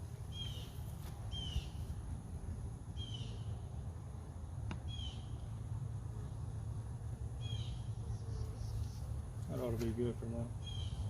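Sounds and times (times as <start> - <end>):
bird chirping: 0.2 - 2.0, 2.9 - 3.6, 4.8 - 5.4, 7.4 - 9.3, 10.6 - 11.0.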